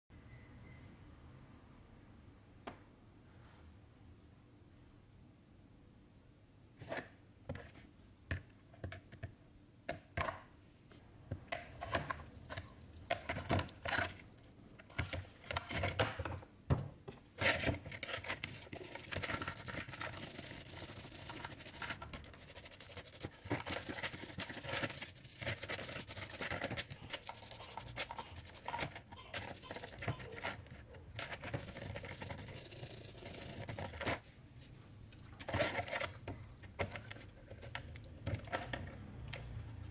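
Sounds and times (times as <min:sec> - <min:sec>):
rubbing and scrubbing metal: 0:18.0 - 0:30.6, 0:31.2 - 0:34.0.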